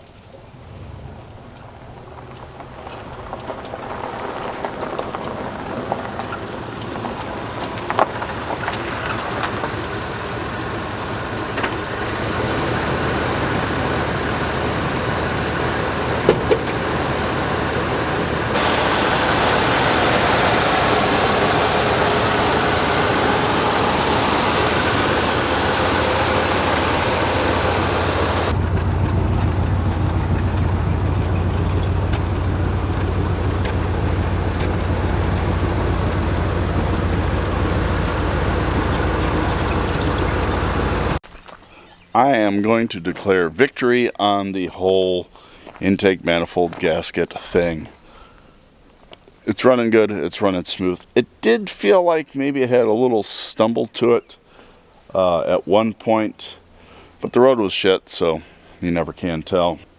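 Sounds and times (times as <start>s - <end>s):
car engine on the road: 0.1s - 41.2s
sharp knocks: 16.2s - 16.8s.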